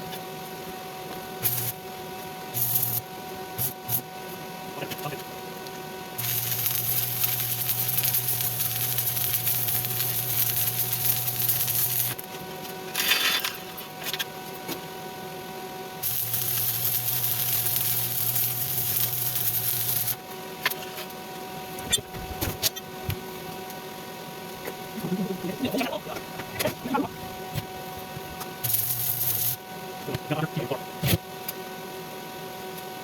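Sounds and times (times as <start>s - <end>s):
steady hum: 0.0s - 33.0s
welding arc crackling: 1.4s - 1.8s, 2.5s - 4.1s, 6.2s - 13.9s, 16.0s - 20.2s, 25.0s - 29.6s.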